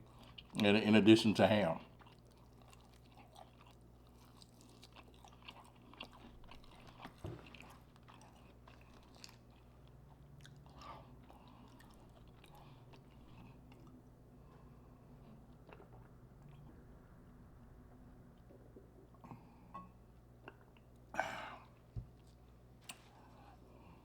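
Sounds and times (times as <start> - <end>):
person chewing: 0.0 - 0.6, 1.8 - 16.7.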